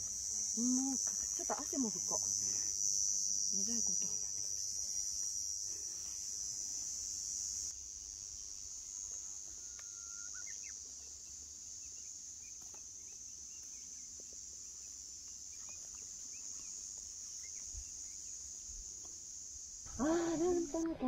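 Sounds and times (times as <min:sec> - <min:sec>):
insects shrilling drone: 0:00.0 - 0:21.0
faint bird chirps and whistles: 0:09.6 - 0:10.8.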